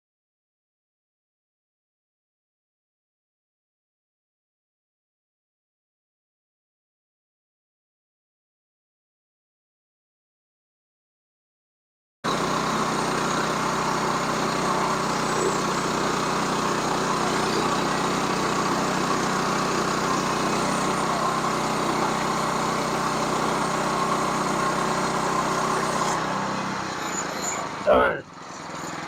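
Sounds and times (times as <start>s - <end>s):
sawmill engine running: 12.3s - 29.0s.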